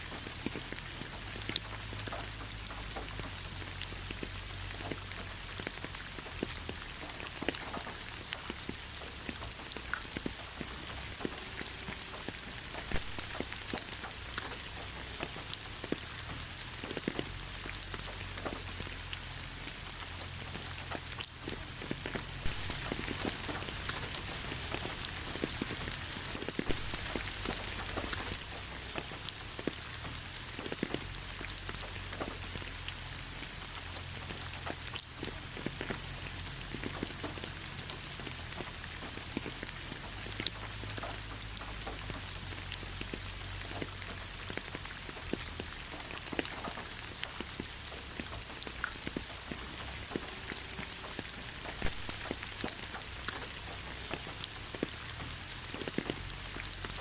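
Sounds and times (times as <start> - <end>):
faint low rumble: 0.0 - 37.2
rain drops pattering: 0.0 - 57.0
rain hiss: 0.0 - 57.0.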